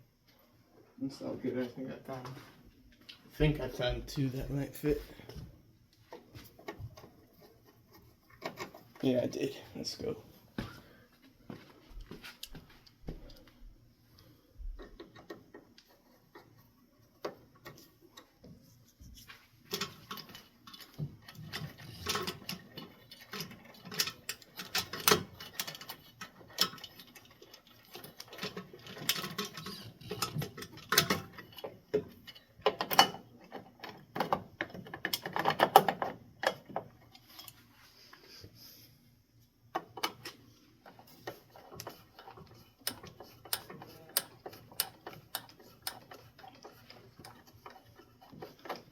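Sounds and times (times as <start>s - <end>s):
screwdriver ratcheting: 41.6s - 48.9s.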